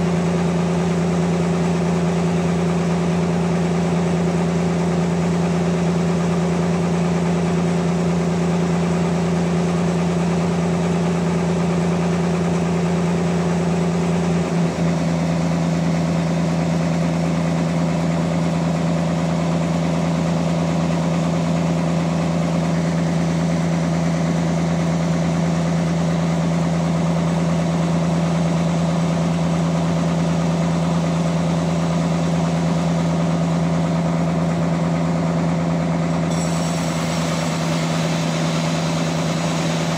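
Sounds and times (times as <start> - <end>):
sawmill machinery humming: 32.0 - 39.9.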